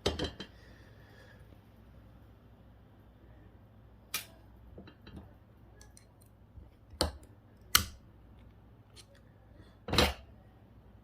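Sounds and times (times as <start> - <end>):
ceramic part cracking: 4.1 - 8.0.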